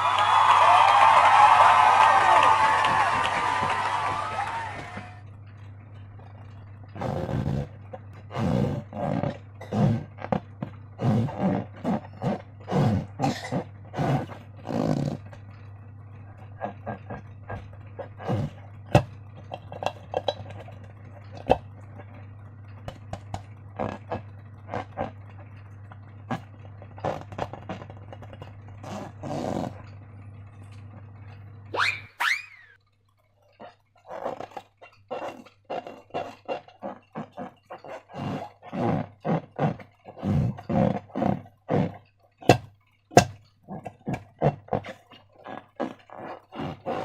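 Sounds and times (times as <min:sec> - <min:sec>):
steady low hum: 0:00.0 - 0:47.0
slime squelching and squeaking: 0:33.5 - 0:47.0.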